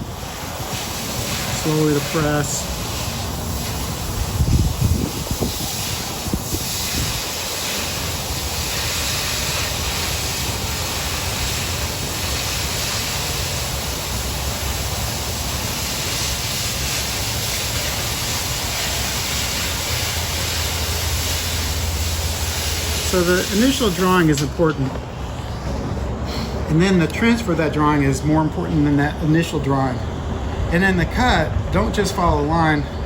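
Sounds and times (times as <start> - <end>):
cutting torch hissing: 0.0 - 25.4.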